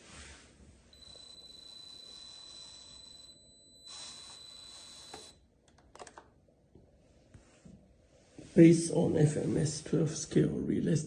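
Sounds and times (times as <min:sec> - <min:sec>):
electric motor whine: 0:03.8 - 0:05.4.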